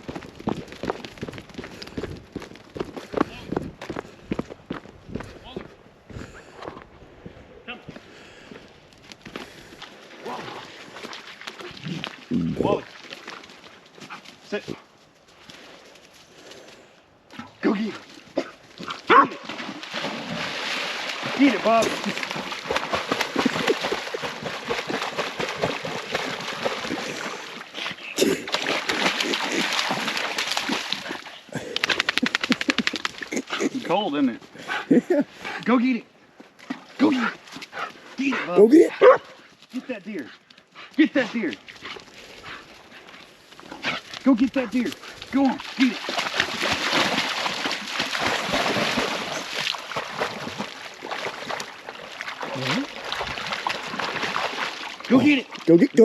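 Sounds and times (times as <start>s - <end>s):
splashing in shallow water: 9.1s - 14.4s, 17.4s - 33.8s, 41.2s - 56.0s.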